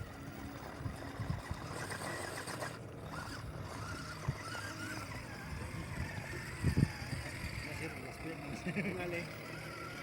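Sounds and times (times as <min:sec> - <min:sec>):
small electric motor whining: 0:00.0 - 0:10.0.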